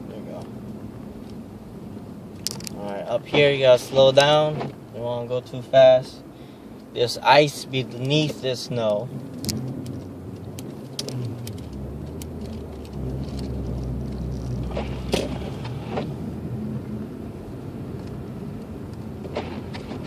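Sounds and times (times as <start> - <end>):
tyre and drivetrain rumble: 7.5 - 20.0.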